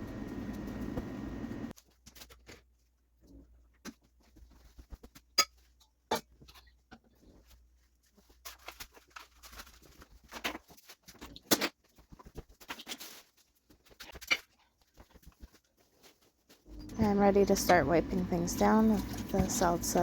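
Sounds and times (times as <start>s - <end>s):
kitchen items clattering: 16.7s - 20.0s.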